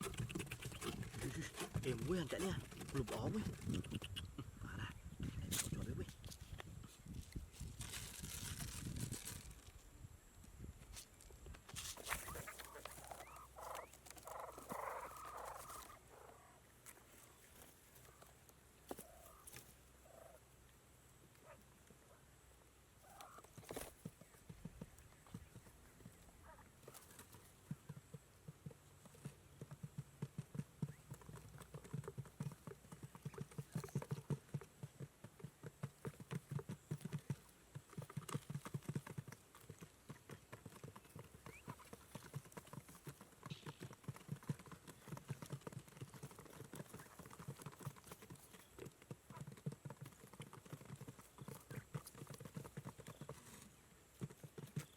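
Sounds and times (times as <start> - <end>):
faint bird calls: 12.0 - 18.3, 18.9 - 20.5, 23.0 - 27.2.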